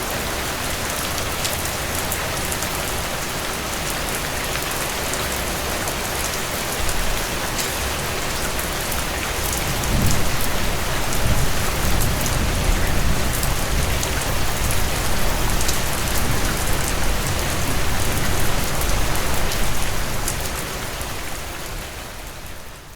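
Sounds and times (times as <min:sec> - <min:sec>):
heavy rain on a tin roof: 0:00.0 - 0:22.9
low thunder rumble: 0:09.6 - 0:19.9.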